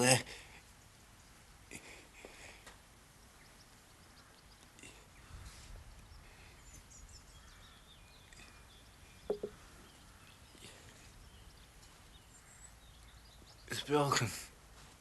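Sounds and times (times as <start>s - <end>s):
faint birdsong: 0.0s - 15.0s
brief knocks: 9.3s - 9.5s.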